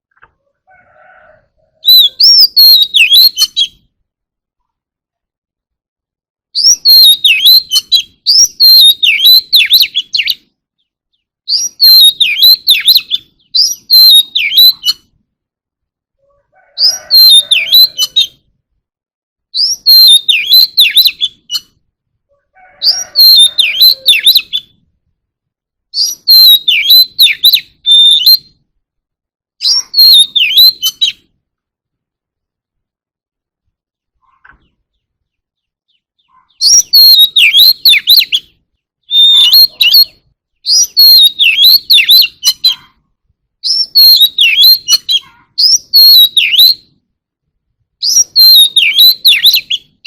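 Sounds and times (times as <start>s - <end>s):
bird singing whistled phrases: 1.8s - 3.8s, 6.5s - 10.4s, 11.1s - 15.1s, 16.8s - 18.4s, 19.5s - 21.8s, 22.7s - 24.8s, 25.9s - 28.6s, 29.6s - 31.2s, 35.9s - 42.9s, 43.6s - 46.9s, 48.0s - 49.9s.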